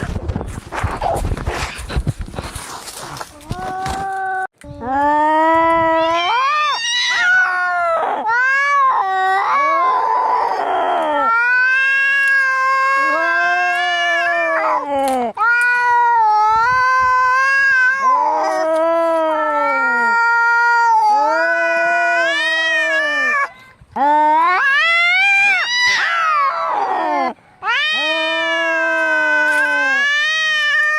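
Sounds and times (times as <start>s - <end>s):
cats yowling in a fight: 5.8s - 23.5s, 24.2s - 30.9s.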